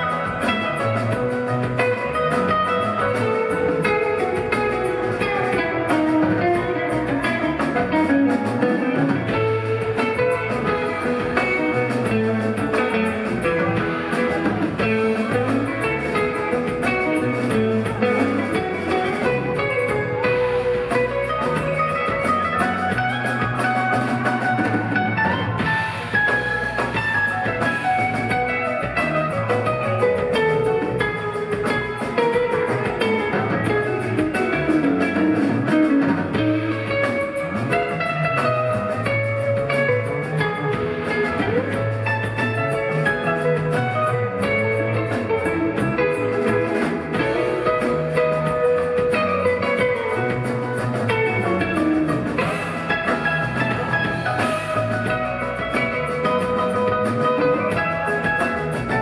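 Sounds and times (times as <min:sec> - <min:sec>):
bass guitar: 0:00.0 - 0:59.0
drum kit: 0:00.0 - 0:59.0
electric guitar lead: 0:00.0 - 0:59.0
keyboards: 0:00.0 - 0:59.0.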